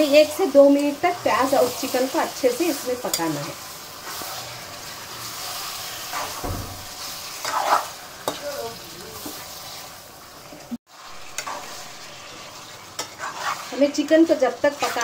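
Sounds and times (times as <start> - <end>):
chicken and onions sizzling in oil: 0.0 - 15.0
spatula scraping and knocking pan: 5.8 - 8.5, 11.2 - 15.0.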